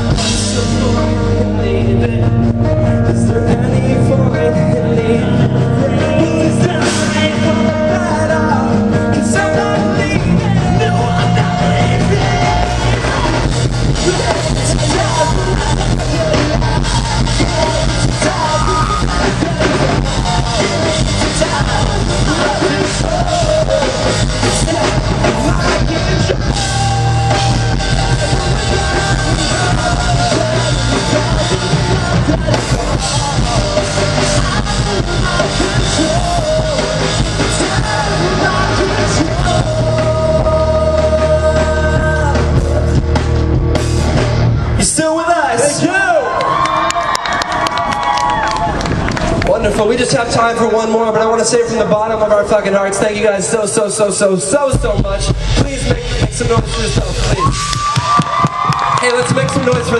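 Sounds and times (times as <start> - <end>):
person singing: 0.0 - 43.2
drum kit: 0.0 - 59.9
rock band playing live: 0.0 - 59.9.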